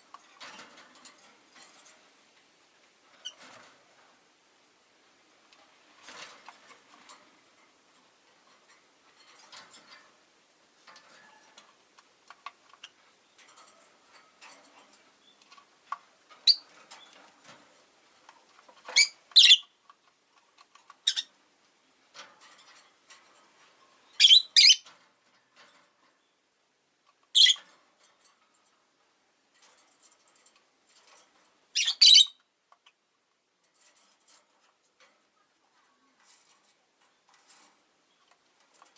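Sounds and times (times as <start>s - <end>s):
shrill bird chirps: 19.0s - 19.7s, 24.2s - 24.8s, 27.4s - 27.6s, 31.8s - 32.4s
lovebirds chattering: 19.0s - 19.8s, 27.4s - 27.6s, 31.8s - 33.0s.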